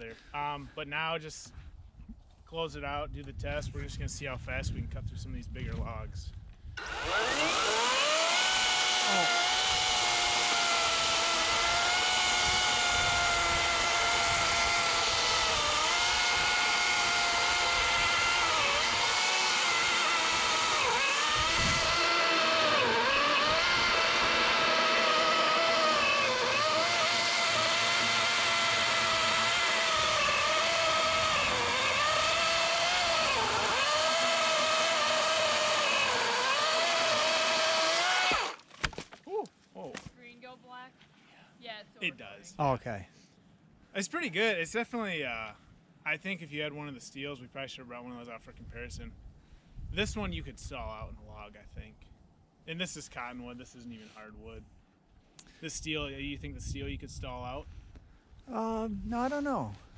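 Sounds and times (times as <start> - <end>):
chainsaw cutting log: 6.8 - 39.2.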